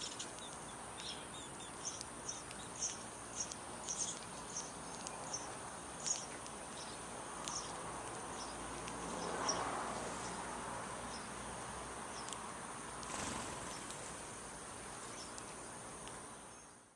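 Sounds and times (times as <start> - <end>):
insects trilling: 0.0 - 16.7.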